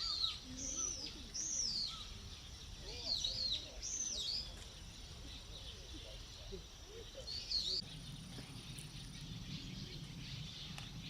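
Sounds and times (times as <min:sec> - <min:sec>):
faint outdoor hiss: 0:00.0 - 0:11.0
small bird chirping: 0:00.0 - 0:11.0.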